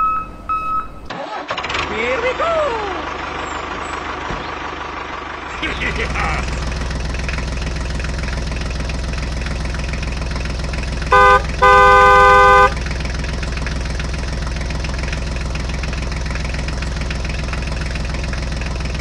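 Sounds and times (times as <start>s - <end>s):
tractor engine chugging: 0.0s - 19.0s
horn tooting: 11.0s - 12.9s.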